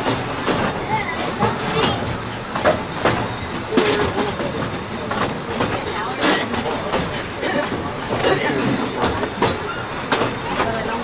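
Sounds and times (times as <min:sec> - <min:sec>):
train rumble and rattle: 0:00.0 - 0:11.0
train wheels clacking on rails: 0:00.0 - 0:11.0.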